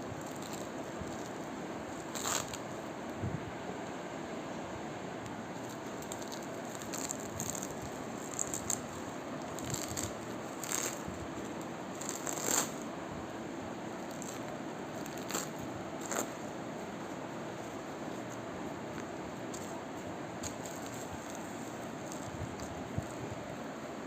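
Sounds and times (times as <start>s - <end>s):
steady hiss: 0.0s - 24.0s
velcro crackling: 0.2s - 2.8s, 5.5s - 12.9s, 14.0s - 16.4s, 20.4s - 23.2s.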